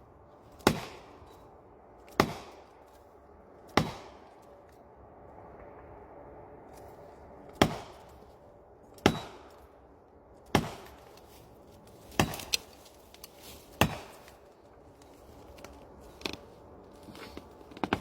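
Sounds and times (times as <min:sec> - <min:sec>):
axe chopping wood: 0:00.6 - 0:01.1, 0:02.1 - 0:02.6, 0:03.7 - 0:04.2, 0:07.6 - 0:08.1, 0:09.0 - 0:09.5, 0:10.4 - 0:11.1, 0:12.0 - 0:12.8, 0:13.5 - 0:14.4.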